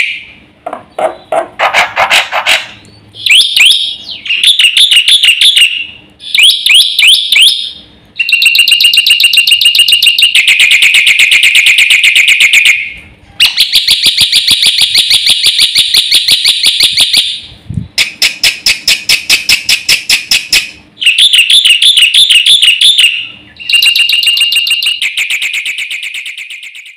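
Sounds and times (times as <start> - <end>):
starling singing shrill notes: 3.2 - 13.6, 21.0 - 26.9.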